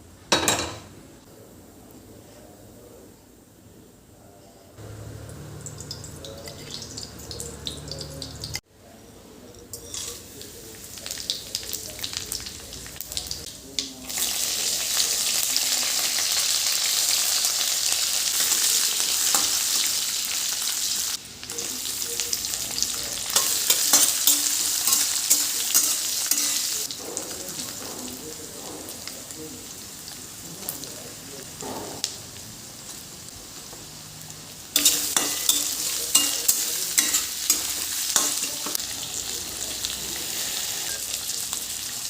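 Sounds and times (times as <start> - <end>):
food sizzling in hot oil: 4.9 - 8.6, 9.7 - 28.4, 29.0 - 42.0.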